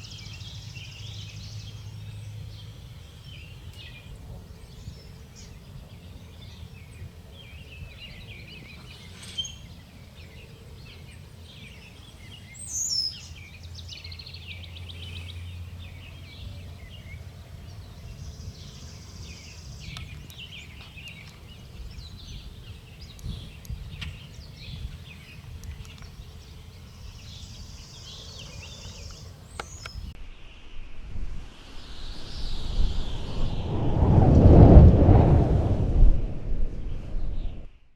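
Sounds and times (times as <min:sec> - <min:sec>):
songbirds chirping and singing: 0:00.0 - 0:30.2
low outdoor rumble: 0:29.1 - 0:37.7.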